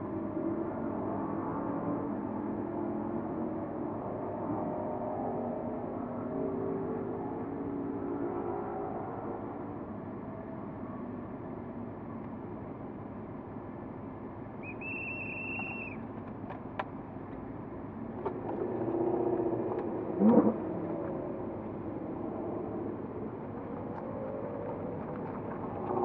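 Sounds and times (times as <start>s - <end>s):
car engine rumbling: 11.7s - 26.0s.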